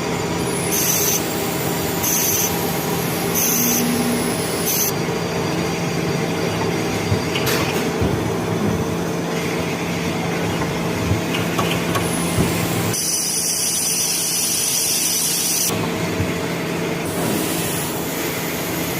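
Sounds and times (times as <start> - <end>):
machine humming: 0.0 - 18.9
high whining tones: 0.6 - 6.2.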